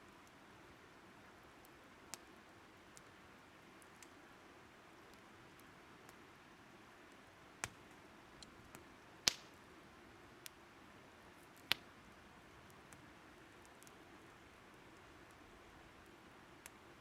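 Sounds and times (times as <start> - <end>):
faint steady hiss: 0.0 - 17.0
burning wood crackling: 1.5 - 4.2, 7.1 - 10.6, 11.2 - 17.0.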